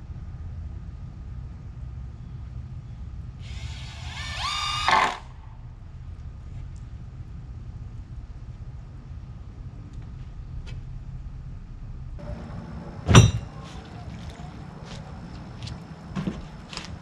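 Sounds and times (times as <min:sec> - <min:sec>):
power drill motor whine: 0:03.4 - 0:05.3
low rumble: 0:05.3 - 0:16.0.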